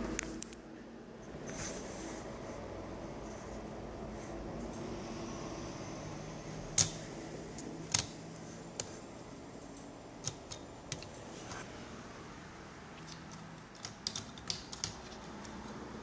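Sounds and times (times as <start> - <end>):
steady low hum: 0.0 - 16.0
clicks and taps of hard parts: 6.7 - 8.2, 10.2 - 11.2, 13.0 - 15.6.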